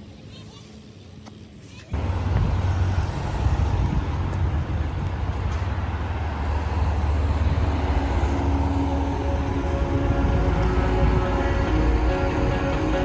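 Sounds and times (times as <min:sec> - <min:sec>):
road traffic rumble: 0:01.1 - 0:13.0.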